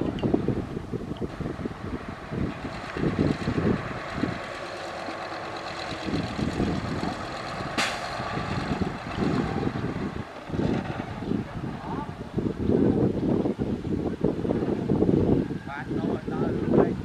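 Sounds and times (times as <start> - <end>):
heavy machinery diesel rumble: 0.0 - 17.0
short hiss: 7.8 - 8.2.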